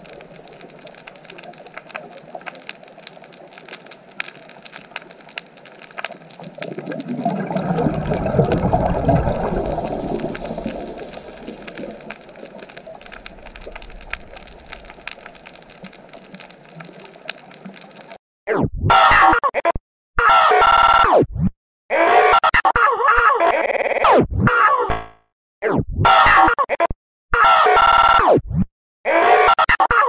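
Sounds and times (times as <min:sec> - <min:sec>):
crackle of small clicks: 0:00.0 - 0:18.2
underwater water rush: 0:00.0 - 0:18.2.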